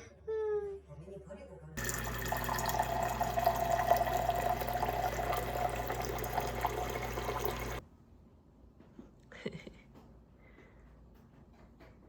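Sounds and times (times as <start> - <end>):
low steady hum: 1.8 - 7.8
tap water running and splashing: 1.8 - 7.8.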